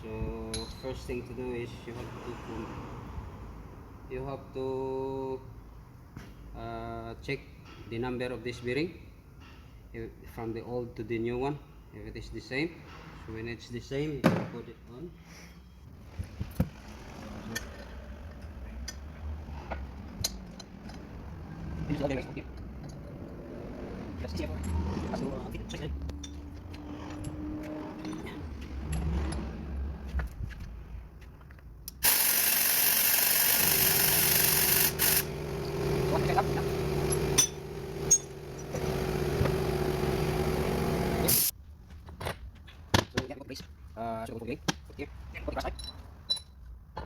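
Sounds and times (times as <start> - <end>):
power tool hissing and humming: 32.0 - 41.5.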